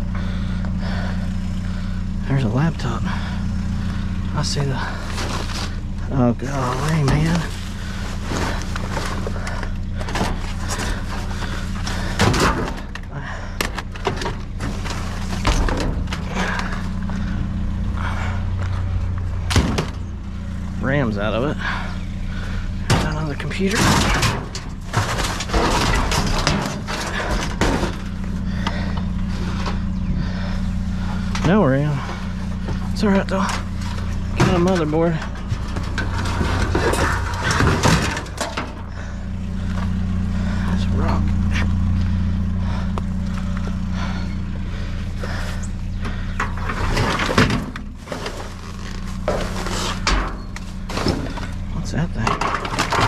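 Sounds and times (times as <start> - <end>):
steady low hum: 0.0 - 53.0
equipment clattering in metal dumpster: 4.4 - 20.2, 21.6 - 39.7, 43.8 - 53.0
computer case clattering: 22.8 - 28.2, 33.5 - 38.9, 52.2 - 53.0.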